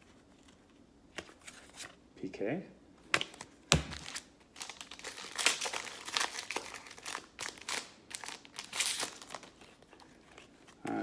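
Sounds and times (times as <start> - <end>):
plastic wrapper crinkling: 3.3 - 10.9.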